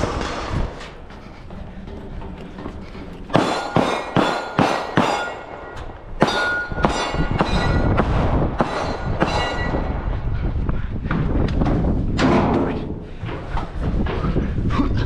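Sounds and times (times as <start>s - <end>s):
gunshots: 3.3s - 10.2s.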